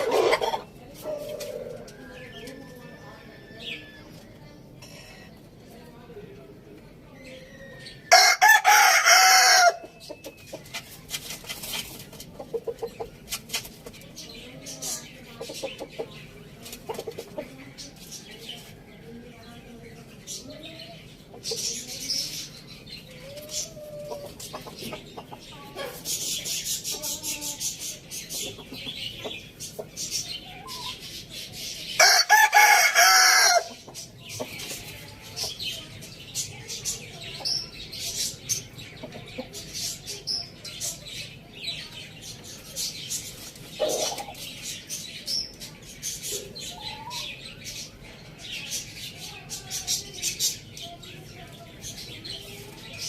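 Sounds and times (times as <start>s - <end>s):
hens clucking: 0.0s - 4.2s, 8.1s - 19.1s, 20.2s - 41.0s, 42.5s - 44.8s
small birds chirping: 0.0s - 53.0s
rooster crowing: 8.1s - 9.8s, 32.0s - 33.7s.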